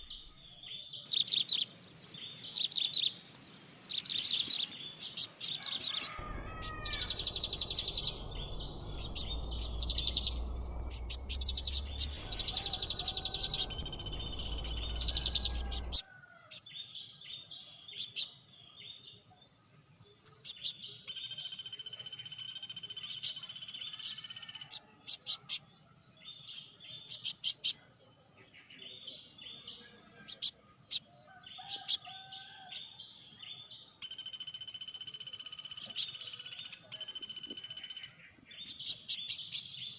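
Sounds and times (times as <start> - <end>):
small birds chirping: 0.0 - 18.4, 19.9 - 27.9, 28.6 - 34.1, 35.3 - 39.9
high-pitched insect drone: 5.1 - 16.0
low rumble: 6.2 - 16.0.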